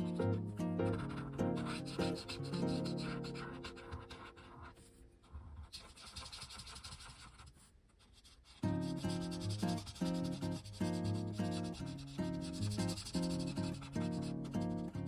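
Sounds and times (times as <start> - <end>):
soft background music: 0.0 - 5.2, 8.6 - 15.0
markers scratching on paper: 0.9 - 14.6.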